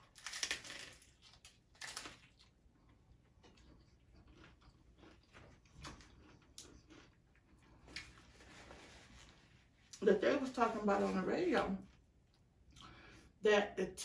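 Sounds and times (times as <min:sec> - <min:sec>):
taco shell crunching: 0:00.0 - 0:08.4
chewing with crackles: 0:00.0 - 0:08.5.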